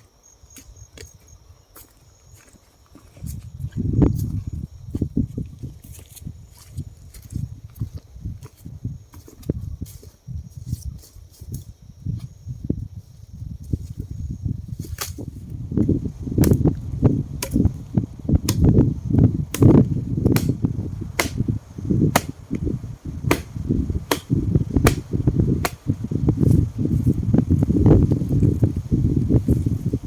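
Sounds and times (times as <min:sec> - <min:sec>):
sharp knocks: 0:21.2 - 0:21.4, 0:22.1 - 0:22.4, 0:23.3 - 0:23.5, 0:24.1 - 0:25.0.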